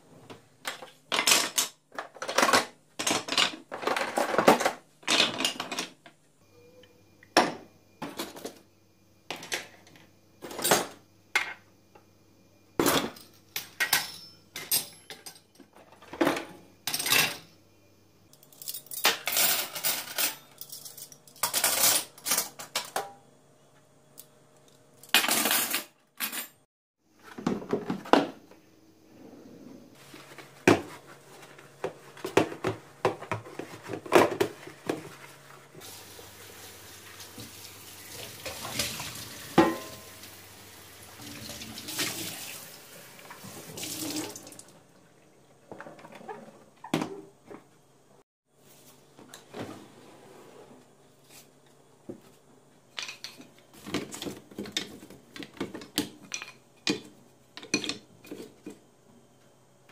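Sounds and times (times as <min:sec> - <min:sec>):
dishes and cutlery clinking: 0:39.6 - 0:40.1.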